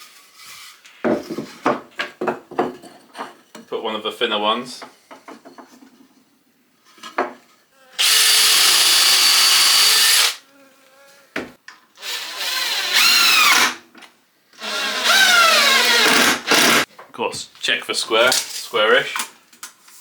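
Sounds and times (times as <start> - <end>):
power drill drilling into wood: 8.0 - 10.4, 12.0 - 13.8, 14.6 - 16.9.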